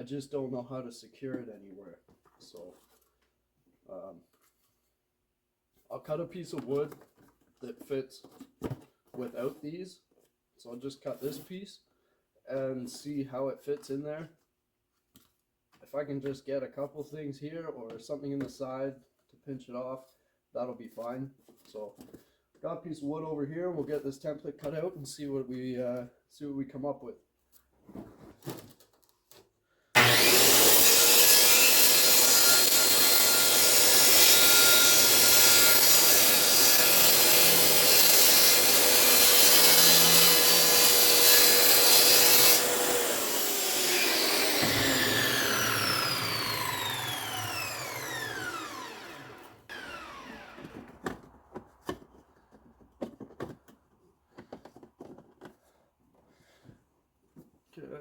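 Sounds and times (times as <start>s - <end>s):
saw blade spinning down: 30.0s - 51.3s
electric saw cutting wood: 30.0s - 51.6s.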